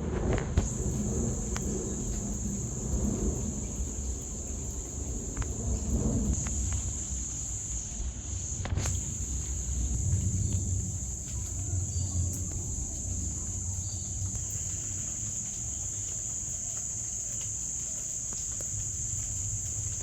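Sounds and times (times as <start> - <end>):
low rumble: 0.0 - 15.8
insects chirring: 0.6 - 20.0.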